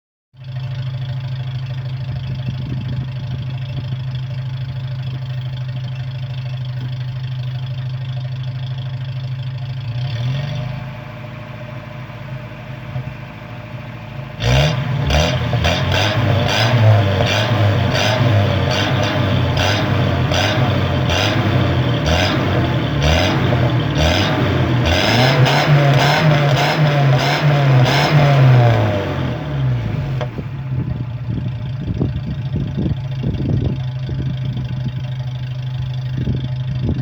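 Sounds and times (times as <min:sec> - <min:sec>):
engine idling: 0:00.3 - 0:37.0
car engine starting up: 0:00.4 - 0:37.0
engine revving in blips: 0:09.9 - 0:11.1, 0:14.4 - 0:31.0.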